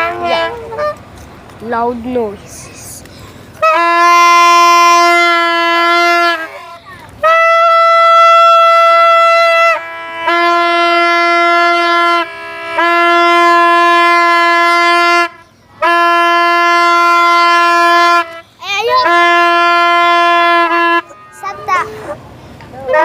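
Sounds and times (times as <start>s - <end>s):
horn-like wind instrument notes: 0.0s - 1.2s, 3.6s - 23.0s.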